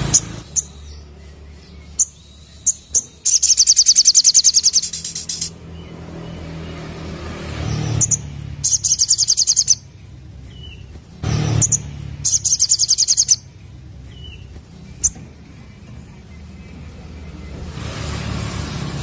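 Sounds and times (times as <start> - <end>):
bird singing high notes: 0.0 - 5.6, 7.7 - 9.9, 10.5 - 16.4
sharp bird call notes: 2.0 - 5.6, 8.0 - 9.8, 11.3 - 13.4.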